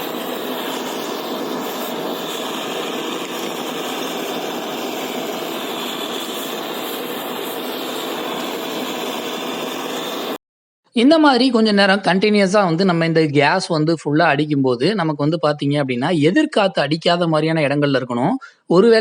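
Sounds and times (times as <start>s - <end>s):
gas torch hissing: 0.0s - 10.4s.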